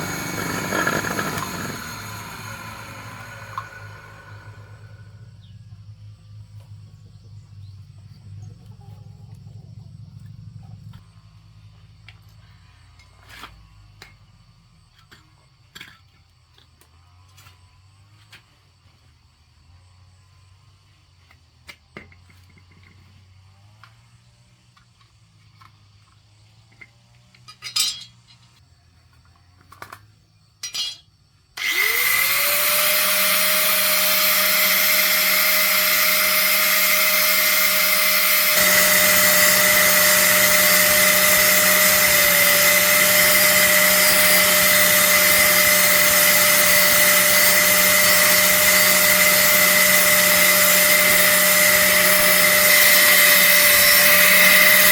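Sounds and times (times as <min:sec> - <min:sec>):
electric motor whining: 0:00.0 - 0:05.2, 0:31.6 - 0:54.9.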